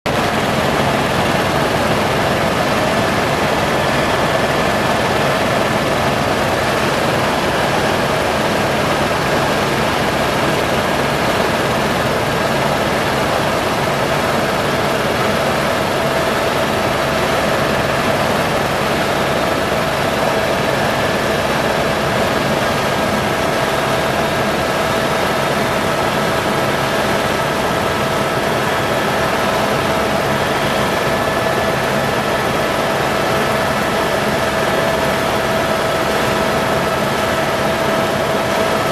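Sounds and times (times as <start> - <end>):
helicopter engine and rotors: 0.1 - 38.9.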